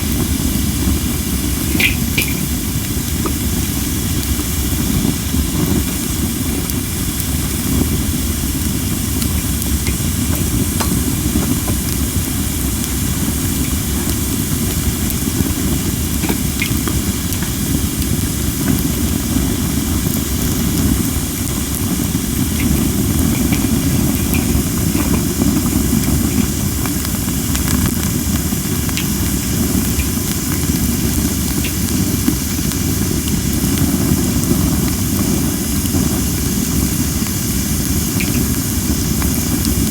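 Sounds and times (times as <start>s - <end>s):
campfire hissing: 0.0s - 39.9s
fire crackles: 0.0s - 39.9s.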